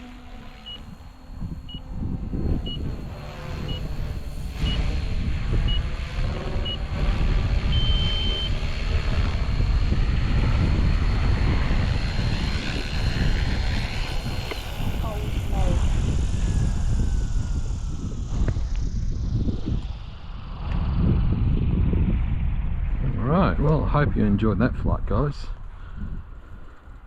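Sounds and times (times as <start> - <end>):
low rushing noise: 0.0 - 25.1
rc helicopter whine: 0.0 - 27.0
transmitter timer beeps: 0.5 - 4.9, 7.7 - 8.6.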